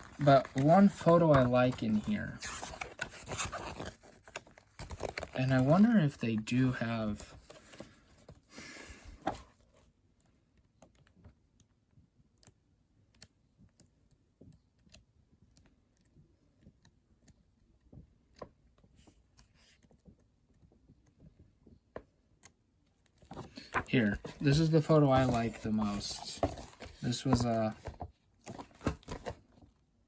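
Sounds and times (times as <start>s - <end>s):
book page turning rustle: 0.0s - 5.8s, 23.2s - 29.6s
faint clicks and taps handling book: 0.0s - 5.8s, 6.5s - 29.8s.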